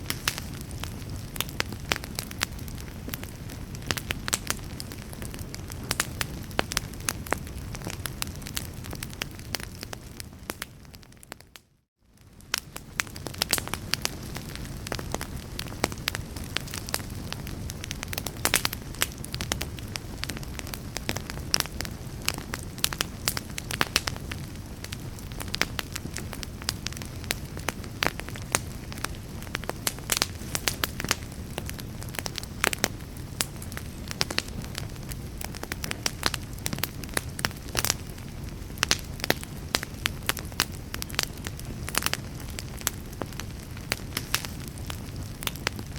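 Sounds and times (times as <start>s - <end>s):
logs crackling and popping: 0.0s - 45.9s
rush of flame: 12.3s - 45.9s.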